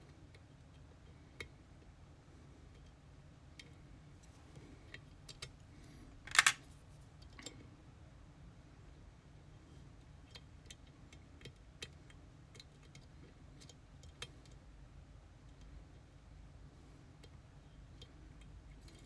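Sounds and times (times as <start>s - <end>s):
metallic clicks of lock picking tools: 6.3s - 6.6s
short metallic clatter: 6.3s - 6.6s.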